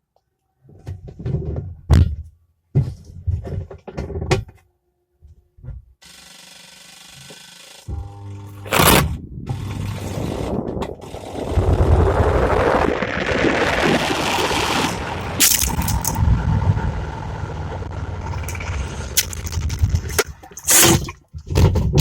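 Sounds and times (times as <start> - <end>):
low hum: 7.9 - 20.7.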